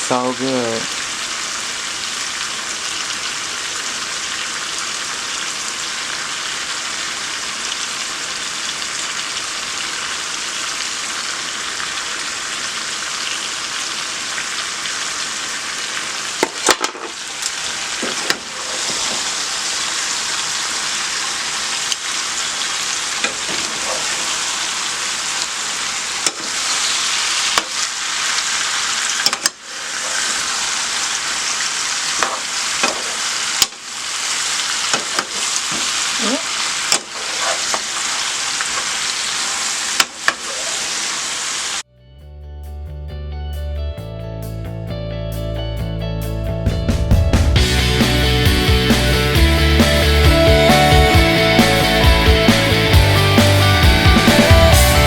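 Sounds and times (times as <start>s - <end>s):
meat sizzling in a pot: 0.0s - 41.8s.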